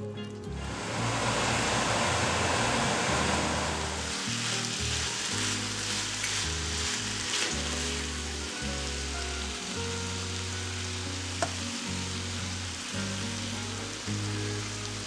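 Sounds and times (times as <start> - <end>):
background music with bass: 0.0 - 15.0
chicken sizzling in a frying pan: 0.5 - 15.0
wooden spoon stirring: 4.0 - 8.4.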